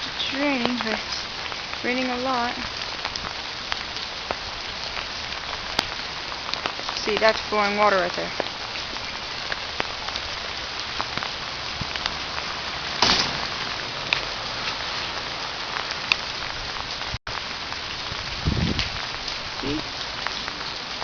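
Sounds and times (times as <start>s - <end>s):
hard rain falling: 0.0s - 21.0s.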